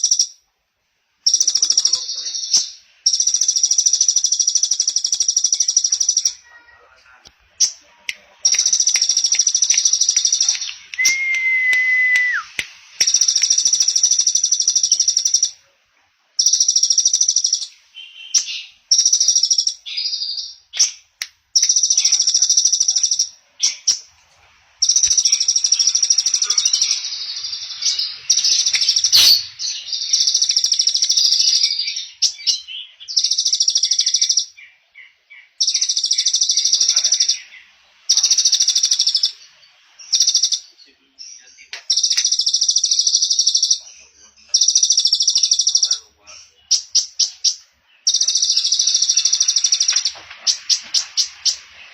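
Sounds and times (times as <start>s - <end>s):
clear whistle: 11.0s - 12.5s, 29.1s - 29.5s
songbird buzzy high trills: 24.8s - 32.6s.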